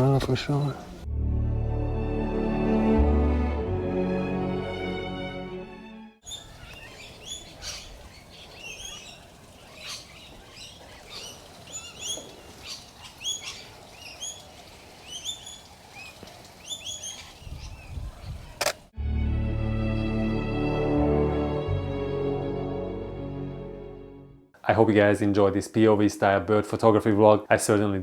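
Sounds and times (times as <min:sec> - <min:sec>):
birds chirping: 0:00.0 - 0:01.1, 0:06.2 - 0:18.9
brief clicks: 0:18.6 - 0:18.8.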